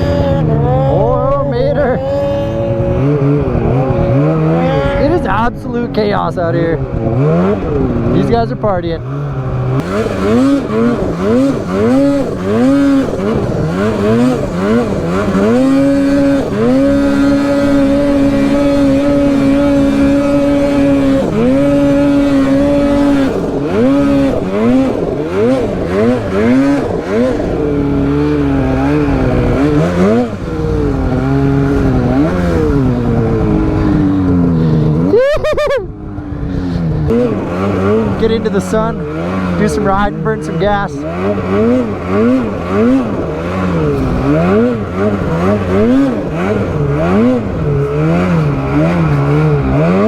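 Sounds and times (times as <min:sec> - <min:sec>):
snowmobile engine revving: 0:00.0 - 0:50.0.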